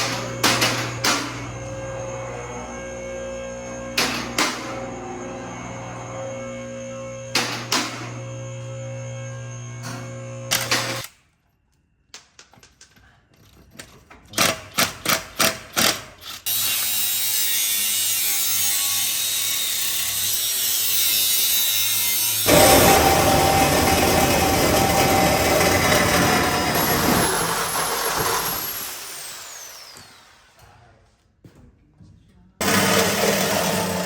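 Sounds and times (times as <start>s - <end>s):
loud mechanical noise: 0.0s - 11.1s, 21.8s - 30.3s, 32.6s - 34.0s.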